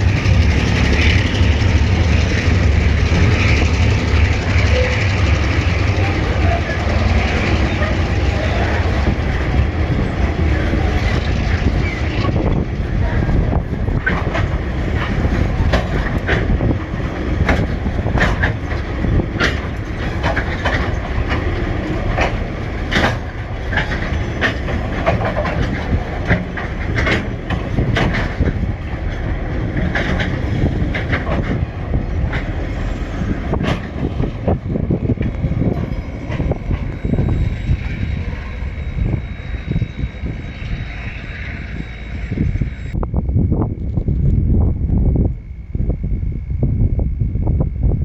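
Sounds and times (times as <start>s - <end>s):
wheels clacking over track: 0.0s - 37.8s
train rumbling past: 0.0s - 48.0s.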